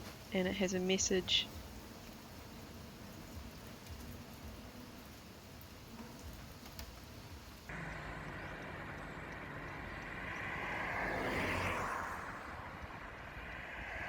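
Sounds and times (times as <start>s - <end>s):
vehicle passing: 7.7s - 14.0s.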